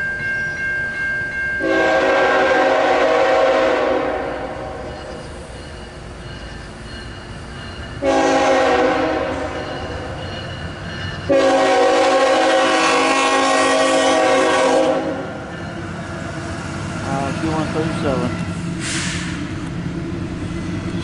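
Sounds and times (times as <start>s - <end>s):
low rumble of train: 0.0s - 21.0s
locomotive air horn blasts: 1.6s - 4.8s, 8.0s - 9.6s, 11.3s - 15.4s.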